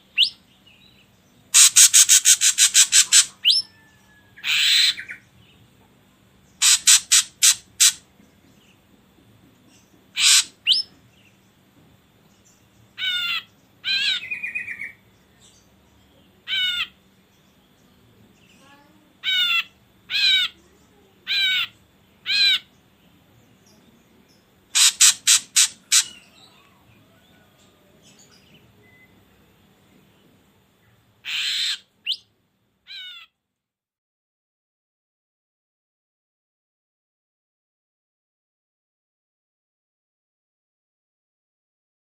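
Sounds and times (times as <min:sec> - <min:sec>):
bird calling harsh notes: 0:01.5 - 0:05.2, 0:06.6 - 0:08.0, 0:10.2 - 0:10.9, 0:13.0 - 0:15.0, 0:16.4 - 0:17.0, 0:19.2 - 0:20.6, 0:21.3 - 0:22.7, 0:24.7 - 0:26.6, 0:31.2 - 0:32.3, 0:32.9 - 0:33.3.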